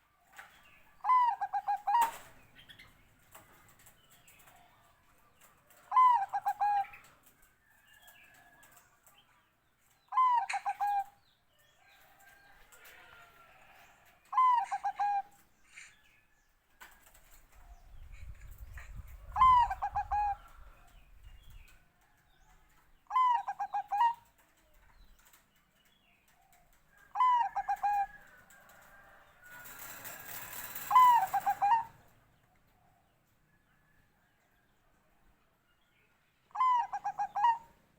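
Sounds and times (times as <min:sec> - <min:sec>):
dove cooing: 0:01.0 - 0:02.4, 0:05.8 - 0:07.1, 0:10.1 - 0:11.1, 0:12.8 - 0:15.4, 0:18.8 - 0:20.9, 0:23.1 - 0:24.4, 0:27.1 - 0:28.8, 0:29.6 - 0:32.1, 0:36.6 - 0:37.7.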